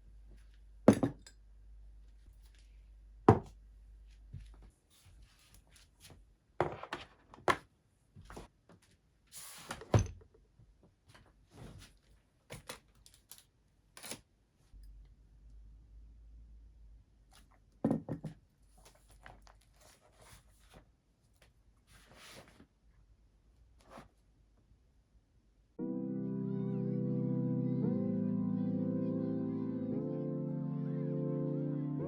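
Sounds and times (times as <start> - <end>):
objects knocking on a desk: 17.8 - 18.4
paper rustle: 18.7 - 22.7.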